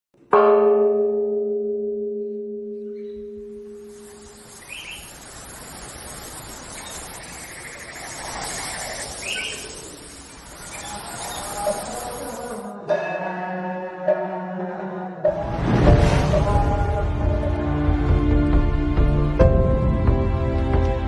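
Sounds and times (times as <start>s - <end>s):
bell-like tone ringing: 1.4s - 7.9s, 9.1s - 14.2s
short bird-like chirps: 2.9s - 12.6s
airy hiss: 3.8s - 12.6s.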